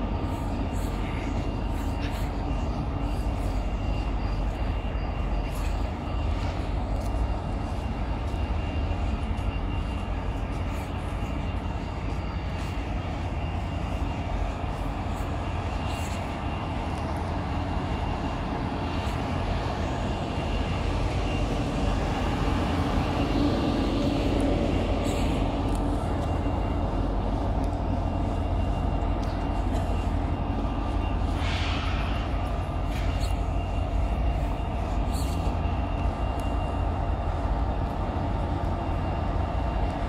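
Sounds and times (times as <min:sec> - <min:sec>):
faint high whine: 0:00.0 - 0:40.0
train low drone: 0:00.0 - 0:40.0.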